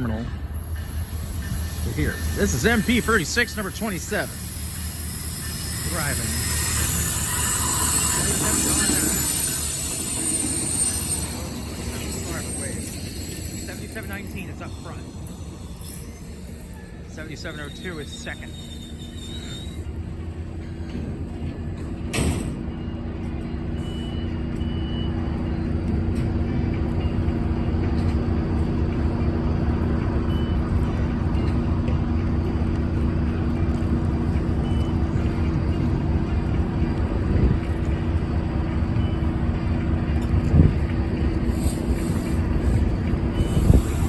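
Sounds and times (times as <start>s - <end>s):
diesel locomotive engine droning: 0.0s - 44.0s
train coaches rumbling by: 0.0s - 44.0s
faint squeaks: 4.8s - 20.0s.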